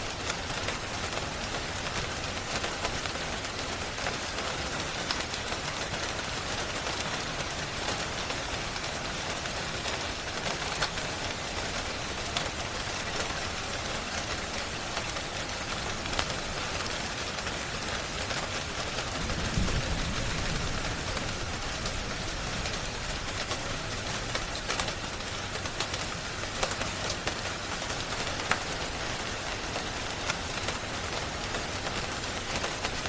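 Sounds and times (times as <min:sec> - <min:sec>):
steady rain: 0:00.0 - 0:33.0
wood fire crackling: 0:07.4 - 0:33.0.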